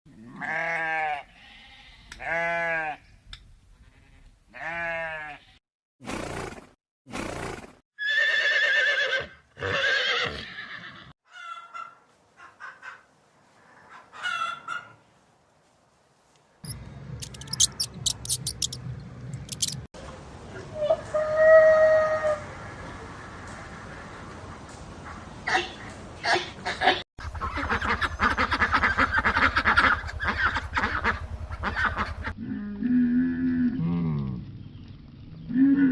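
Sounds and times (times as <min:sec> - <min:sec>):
quick high clicks: 0:17.2 - 0:19.9
farm animal calls: 0:27.2 - 0:32.6.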